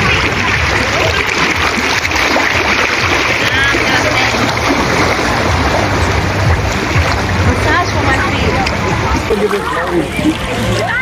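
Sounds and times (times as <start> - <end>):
distant voices: 0.0 - 11.0
water rushing and splashing: 0.0 - 11.0
people shrieking: 10.5 - 11.0.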